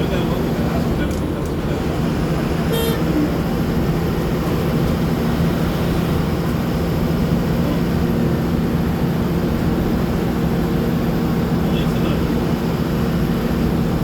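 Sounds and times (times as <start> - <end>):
vehicle engine hum: 0.0 - 14.0.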